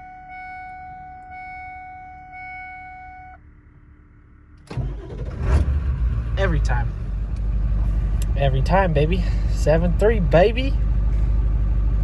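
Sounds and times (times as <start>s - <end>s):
dashboard warning chime: 0.0s - 3.4s
diesel engine cranking and running: 4.6s - 12.0s.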